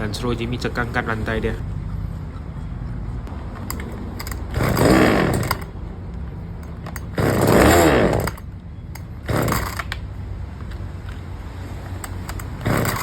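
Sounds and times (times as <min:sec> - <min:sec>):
chainsaw engine idling and revving: 0:04.1 - 0:05.8, 0:06.9 - 0:10.0, 0:12.0 - 0:13.0.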